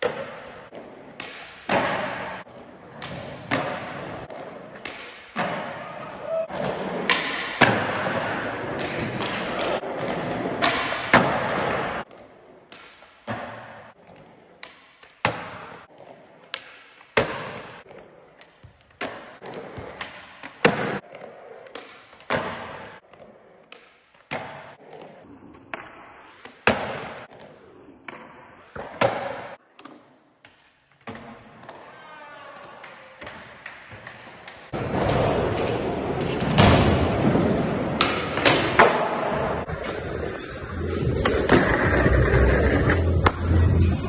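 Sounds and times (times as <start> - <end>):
skateboard wheels rolling on concrete: 0.0 - 32.0, 33.2 - 44.0.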